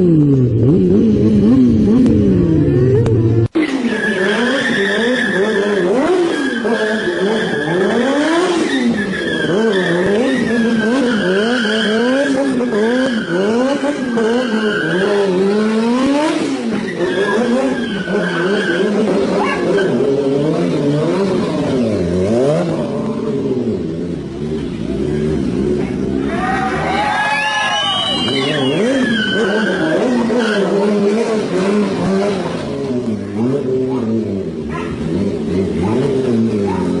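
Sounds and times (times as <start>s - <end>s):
engine revving: 0.0s - 27.0s, 27.9s - 37.0s
high tire squeal: 3.6s - 20.5s, 24.9s - 31.5s.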